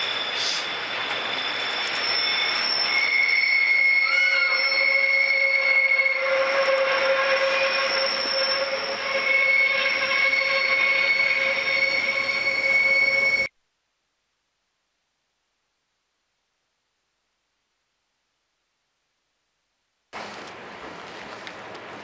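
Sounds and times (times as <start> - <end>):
train rolling rumble: 0.0 - 13.5, 20.2 - 22.0
train wheels squealing: 0.0 - 13.5.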